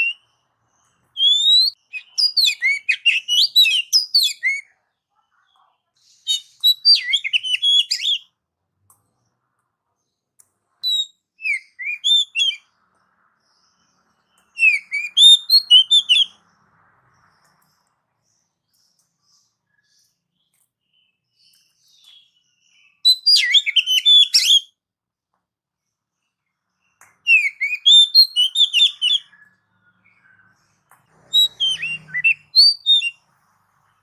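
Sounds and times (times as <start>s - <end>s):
bird singing whistled notes: 0.0s - 4.8s, 6.2s - 8.4s, 10.8s - 24.8s, 26.8s - 33.3s.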